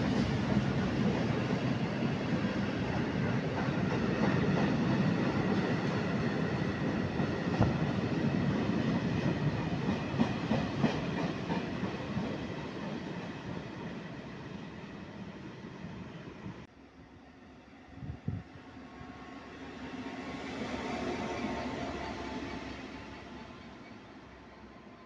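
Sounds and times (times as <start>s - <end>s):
freight train wheels rumbling: 0.0s - 16.7s.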